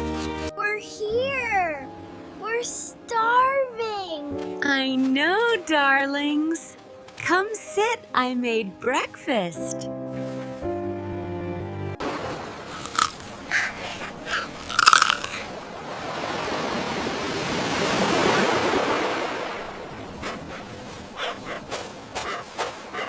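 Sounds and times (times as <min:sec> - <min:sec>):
crunching bites and chewing: 0:12.8 - 0:15.5.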